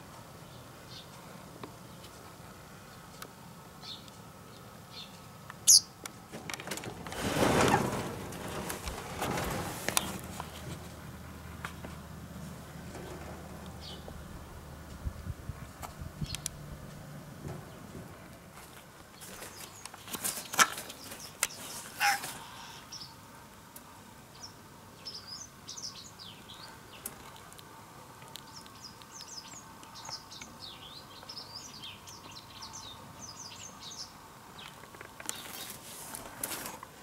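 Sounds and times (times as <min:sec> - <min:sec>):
small birds twittering: 0:03.8 - 0:06.0, 0:19.2 - 0:23.2, 0:24.3 - 0:27.3, 0:28.4 - 0:35.7.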